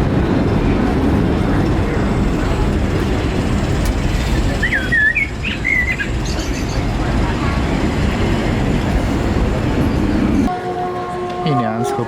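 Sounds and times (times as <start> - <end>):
train rumbling along track: 0.0 - 12.0.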